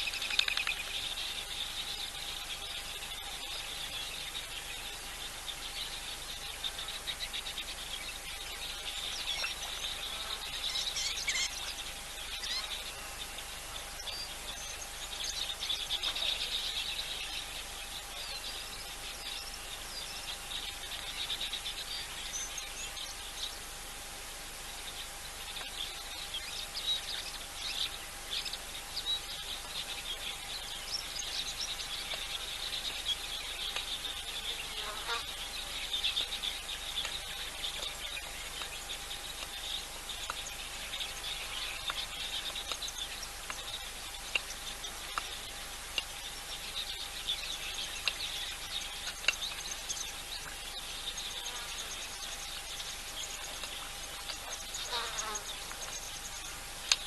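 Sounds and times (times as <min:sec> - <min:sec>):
bird calls: 0:00.0 - 0:23.8, 0:24.6 - 0:57.0
faint steady hum: 0:00.0 - 0:57.0
insects chirring: 0:24.6 - 0:57.0.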